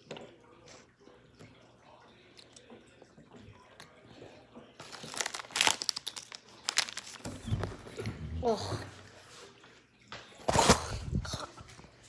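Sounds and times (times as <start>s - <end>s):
snack packaging crinkling: 4.8s - 8.4s.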